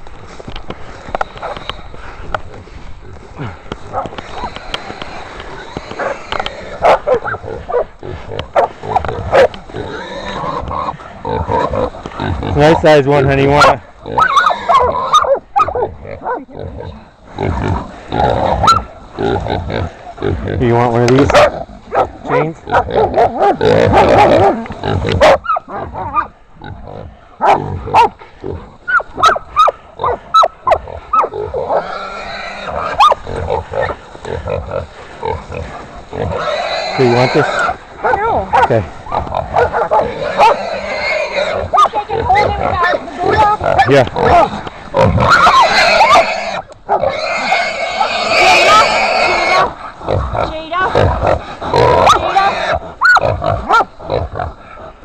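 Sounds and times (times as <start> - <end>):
dogs barking: 6.8 - 7.9, 8.5 - 9.6, 13.5 - 16.5, 18.6 - 18.9, 21.2 - 26.3, 27.4 - 28.2, 28.9 - 31.9, 32.9 - 34.0, 38.0 - 38.8, 39.4 - 40.6, 41.7 - 44.4, 45.2 - 49.8, 52.0 - 54.0
pig squealing: 8.6 - 20.4, 21.2 - 26.3, 28.9 - 54.6
hog squealing: 13.5 - 15.8, 39.5 - 49.7, 51.8 - 53.8.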